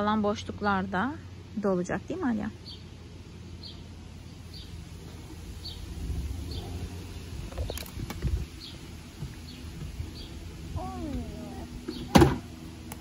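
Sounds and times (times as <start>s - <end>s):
small bird chirping: 2.6s - 4.9s, 5.6s - 12.1s.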